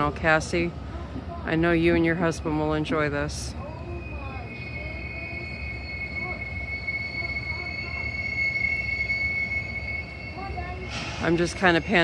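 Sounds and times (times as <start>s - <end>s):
train wheels squealing: 2.8s - 12.0s
low rumble: 10.0s - 12.0s.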